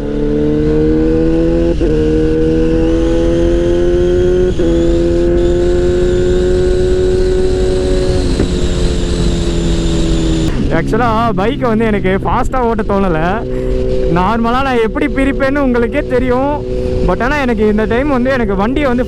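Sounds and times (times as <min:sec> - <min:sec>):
motorcycle engine on the road: 0:00.0 - 0:19.0
wind rushing: 0:02.6 - 0:15.0, 0:15.7 - 0:18.0.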